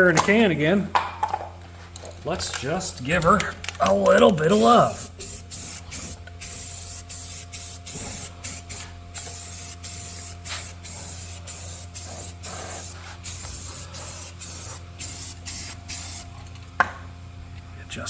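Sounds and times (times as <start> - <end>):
spray can hissing in bursts: 4.5 - 16.2.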